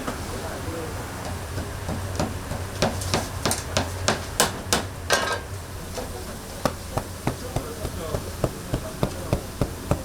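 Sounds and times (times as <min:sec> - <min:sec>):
sharp knocks: 0:06.6 - 0:10.0.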